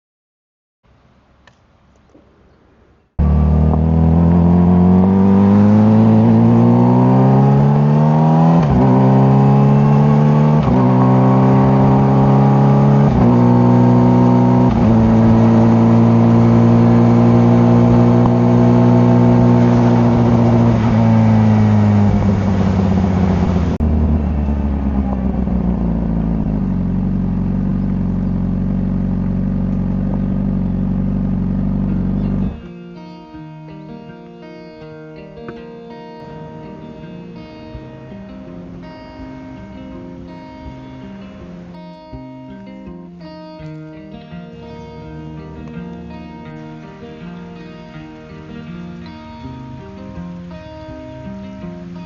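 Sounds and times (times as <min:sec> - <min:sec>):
motorcycle engine accelerating: 0:03.2 - 0:32.7.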